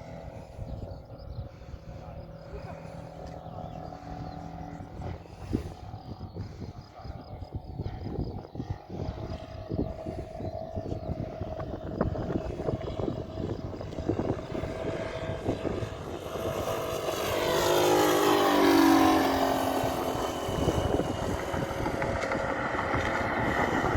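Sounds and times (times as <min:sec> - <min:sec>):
model airplane engine flying by: 0:00.0 - 0:23.9
wind buffeting microphone: 0:00.0 - 0:23.9.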